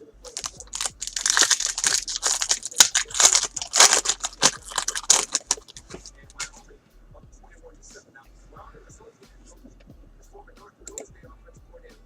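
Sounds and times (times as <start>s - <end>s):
wrapper crinkling and tearing: 0.3s - 6.1s.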